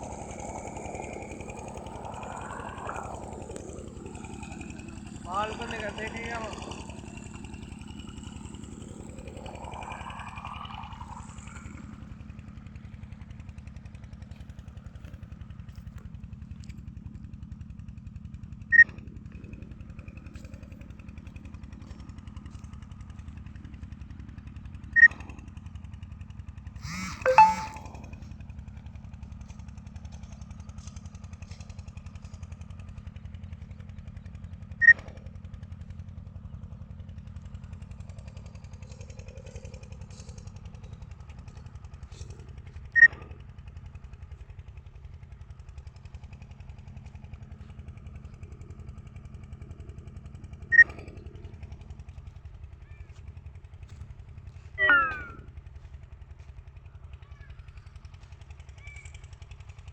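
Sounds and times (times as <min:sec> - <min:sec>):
small engine idling: 0:00.0 - 0:59.9
sharp high-pitched sounds: 0:26.8 - 0:28.0, 0:54.8 - 0:55.4.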